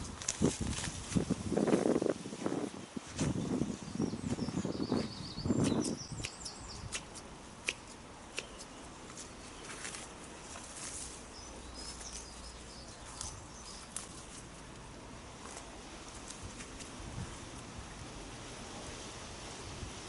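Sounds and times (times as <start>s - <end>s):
loud rustle: 0.0s - 3.4s
small birds chirping: 2.6s - 15.0s
sharp clicks from hand work: 5.8s - 8.8s.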